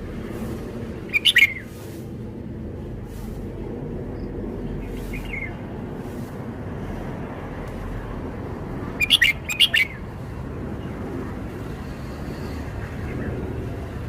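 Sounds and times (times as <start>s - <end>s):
low background rumble: 0.0s - 14.0s
bird singing quick loud notes: 1.1s - 1.7s, 9.0s - 10.0s.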